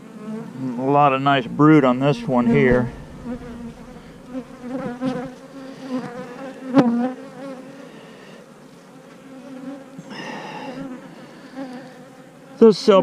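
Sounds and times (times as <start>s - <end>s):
bees buzzing: 0.0s - 8.6s.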